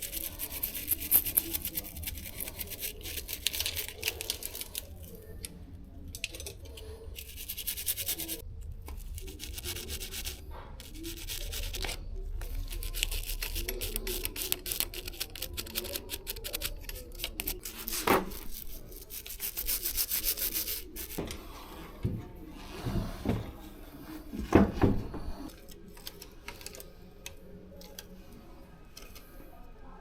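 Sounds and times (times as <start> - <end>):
bicycle chain being scrubbed: 0.0 - 5.0, 7.1 - 8.4, 9.0 - 21.2
knocks and handling noises: 21.1 - 28.0.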